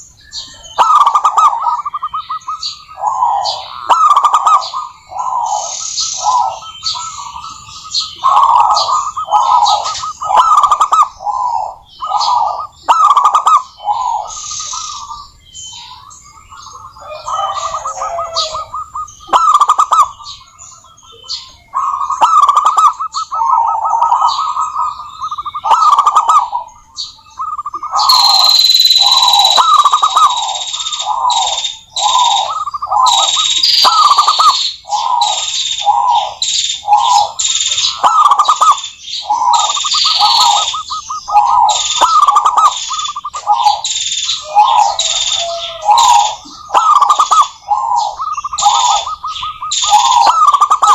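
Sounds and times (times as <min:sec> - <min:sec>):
doves cooing: 0:00.0 - 0:50.9
bird chirps and whistles: 0:17.4 - 0:50.9.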